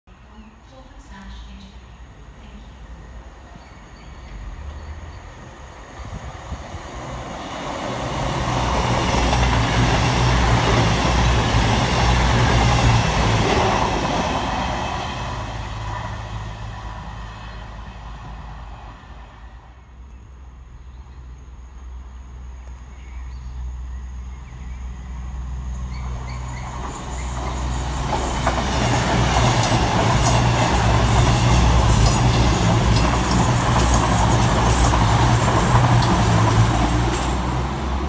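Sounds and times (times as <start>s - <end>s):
diesel train engine drone: 0.7s - 38.0s
train wheels on rails: 4.3s - 19.7s, 25.1s - 38.0s.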